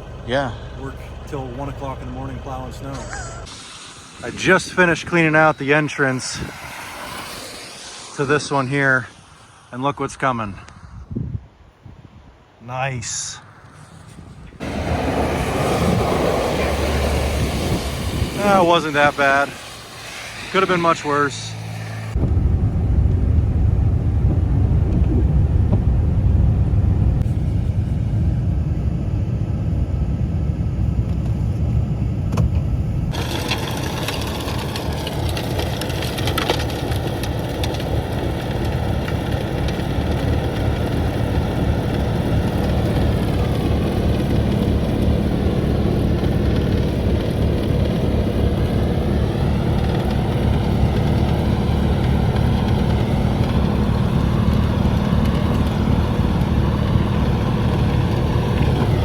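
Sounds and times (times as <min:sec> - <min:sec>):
snow-clearing machine engine: 0:00.0 - 0:09.7, 0:12.8 - 0:32.4, 0:33.0 - 0:59.0.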